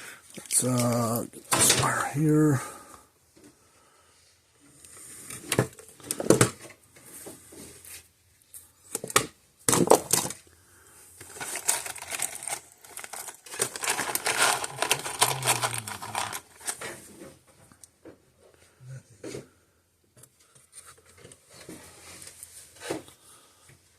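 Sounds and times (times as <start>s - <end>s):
scraping and rustling: 11.2s - 17.6s.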